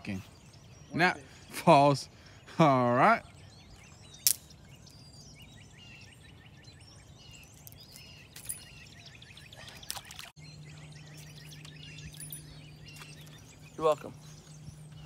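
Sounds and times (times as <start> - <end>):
small birds chirping: 0.0 - 15.0
low steady hum: 7.0 - 15.0.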